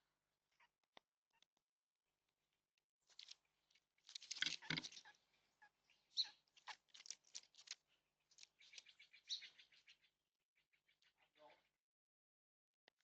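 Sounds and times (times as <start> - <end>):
bird pecking and scratching: 4.1 - 5.1, 6.6 - 7.8.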